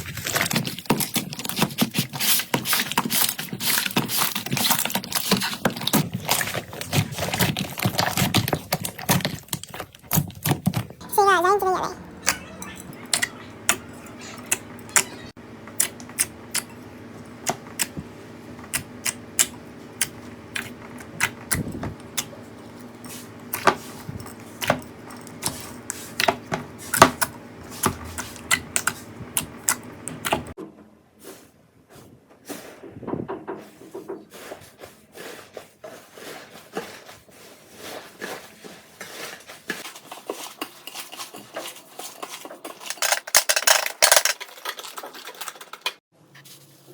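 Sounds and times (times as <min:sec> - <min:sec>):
steady low hum: 0:11.9 - 0:30.6.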